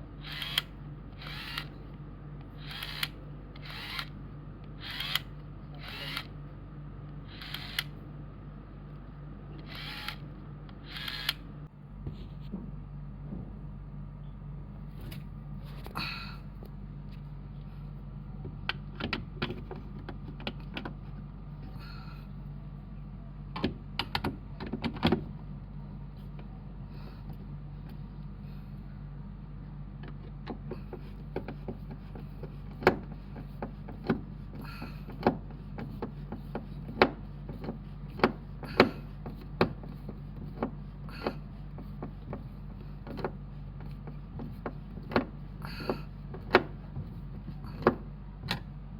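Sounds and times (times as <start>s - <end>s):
steady low hum: 0.0s - 48.9s
sharp clicks and knocks: 30.0s - 34.3s, 35.1s - 48.7s.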